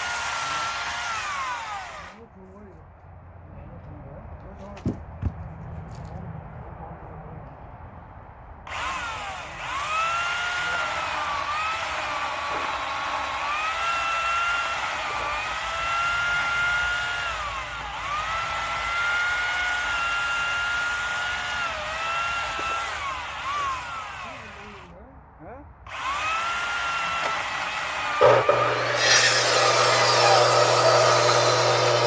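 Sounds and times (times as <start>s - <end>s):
electric saw cutting wood: 0.0s - 2.2s, 8.7s - 24.9s, 25.9s - 32.0s.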